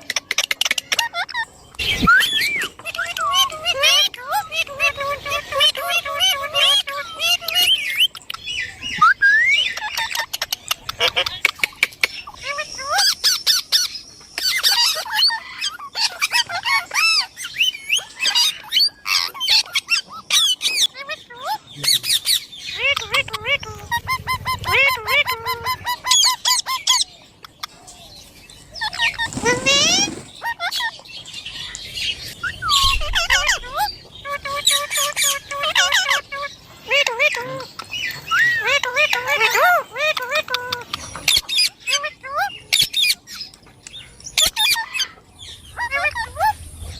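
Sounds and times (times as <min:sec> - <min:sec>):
parakeet squawking: 0:29.2 - 0:30.5.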